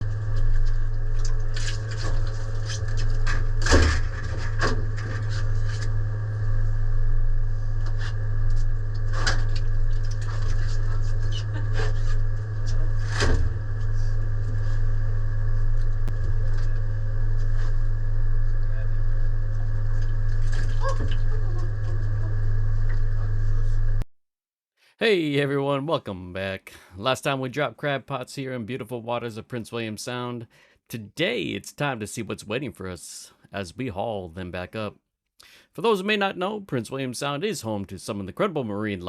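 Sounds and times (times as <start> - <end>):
low machine hum: 0.0 - 24.1.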